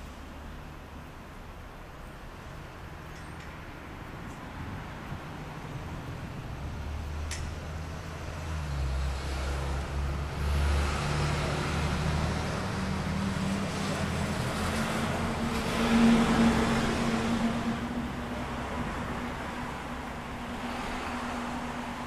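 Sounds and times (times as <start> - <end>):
fire engine diesel engine accelerating: 5.9 - 22.0.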